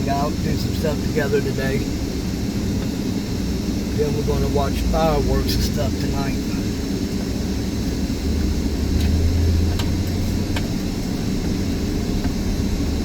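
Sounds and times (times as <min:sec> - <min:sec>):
car driving rumble inside cabin: 0:00.0 - 0:13.0
deeper drone: 0:00.0 - 0:13.0.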